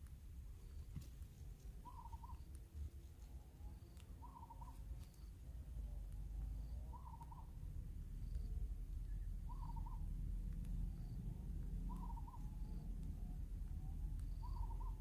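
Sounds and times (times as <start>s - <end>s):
steady low rumble: 0.0s - 15.0s
bird calling: 1.8s - 2.5s, 3.7s - 5.3s, 6.5s - 7.6s, 9.0s - 10.1s, 11.8s - 12.9s, 13.8s - 15.0s.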